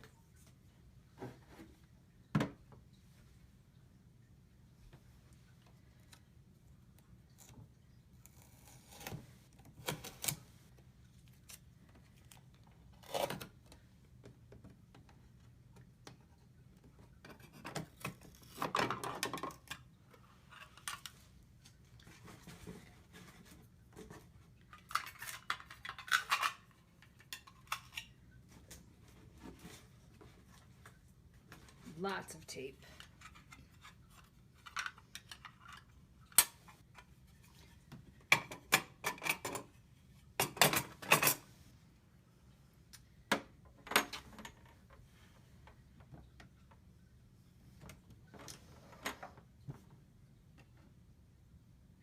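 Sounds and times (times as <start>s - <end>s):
clicks and knocks of handled parts: 24.7s - 28.8s, 33.0s - 37.1s.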